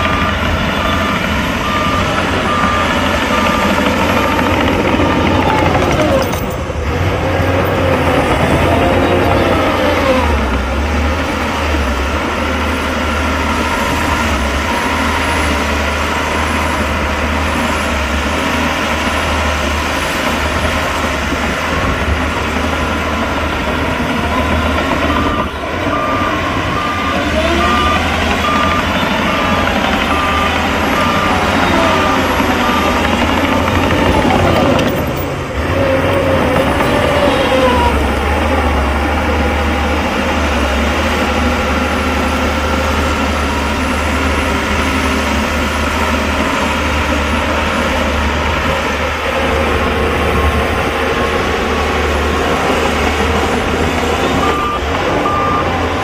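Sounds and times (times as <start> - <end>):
reversing alarm beeping: 0.0 - 6.8, 23.0 - 35.3, 52.7 - 56.0
heavy machinery engines running: 0.0 - 56.0.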